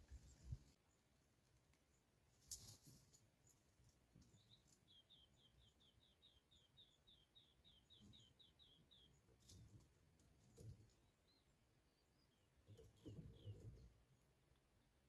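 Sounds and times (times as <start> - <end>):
bird chirping trill: 4.2 - 9.5.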